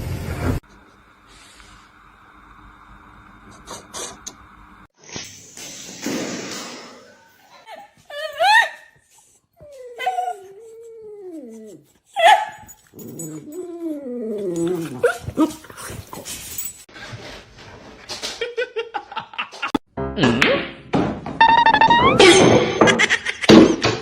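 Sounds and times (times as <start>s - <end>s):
dog whining and howling: 9.6s - 15.6s
dog yelping: 12.2s - 12.7s.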